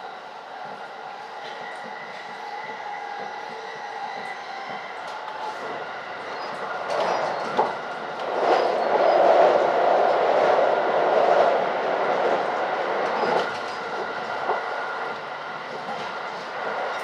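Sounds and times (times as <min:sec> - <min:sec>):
train wheel rumble: 0:00.0 - 0:17.0
rail-joint clicks: 0:06.4 - 0:09.1.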